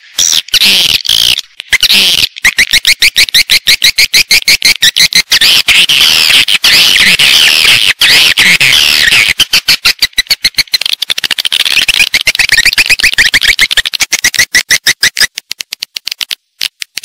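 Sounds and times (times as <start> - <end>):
swiftlets twittering: 8.0 - 15.3.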